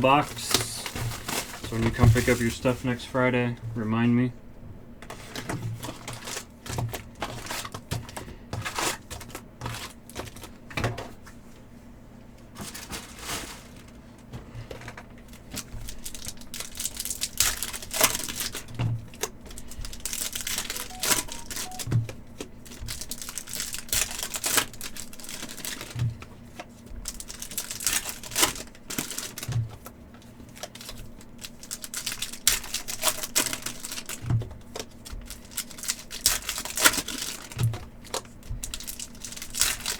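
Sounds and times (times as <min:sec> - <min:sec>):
foil wrappers crinkling and tearing: 0:00.1 - 0:02.7, 0:05.3 - 0:07.8, 0:12.6 - 0:14.0, 0:15.3 - 0:18.8, 0:23.0 - 0:26.0, 0:27.0 - 0:29.6, 0:30.5 - 0:39.9.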